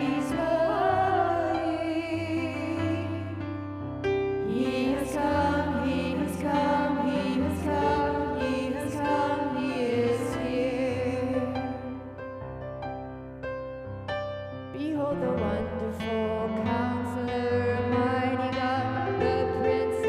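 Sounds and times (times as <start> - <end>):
person singing with vibrato: 4.4 - 12.2, 14.7 - 20.0.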